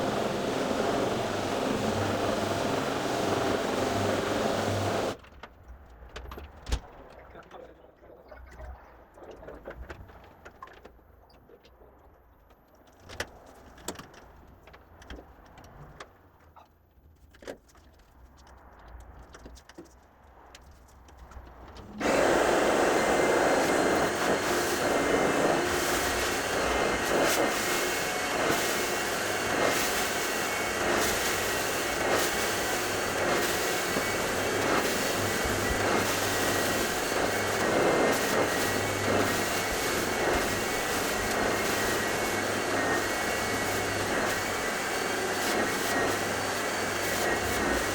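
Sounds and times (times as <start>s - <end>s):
carpet cleaner motor rushing: 0.0s - 5.2s, 21.8s - 47.9s.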